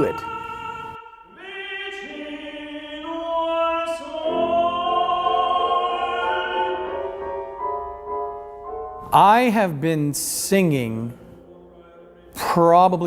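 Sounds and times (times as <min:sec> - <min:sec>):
operatic choral singing: 0:00.0 - 0:07.9, 0:10.8 - 0:13.0.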